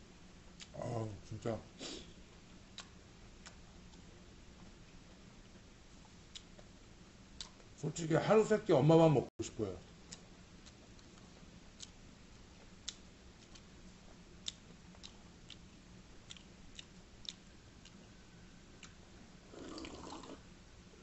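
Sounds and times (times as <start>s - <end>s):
person chewing food: 2.3s - 6.8s, 7.4s - 7.7s, 10.0s - 20.4s
sip from a mug: 19.5s - 20.4s.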